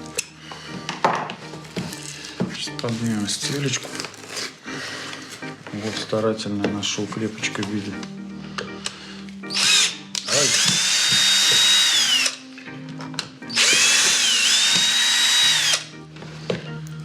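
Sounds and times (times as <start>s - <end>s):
cordless drill motor whine: 9.5s - 12.4s, 13.5s - 15.9s.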